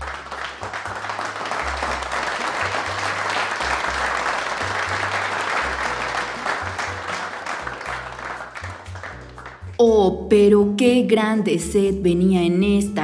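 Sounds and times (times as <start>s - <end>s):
applause: 0.0s - 9.8s
background music with bass line: 0.0s - 11.0s.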